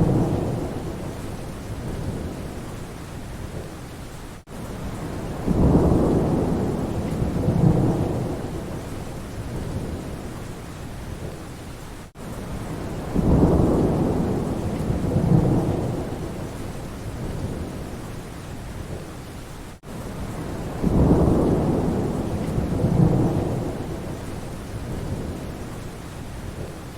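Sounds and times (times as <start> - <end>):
thunder rumbling: 0.0 - 2.7, 4.8 - 10.4, 12.5 - 18.1, 20.2 - 25.8
rain falling in forest: 0.0 - 26.9.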